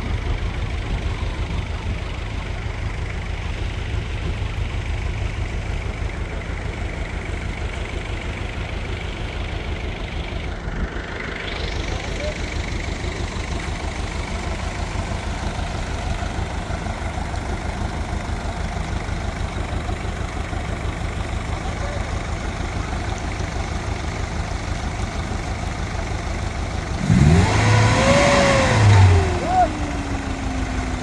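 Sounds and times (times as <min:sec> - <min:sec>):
engine throbbing: 0:26.4 - 0:31.0
loud rising and falling call: 0:28.0 - 0:30.4.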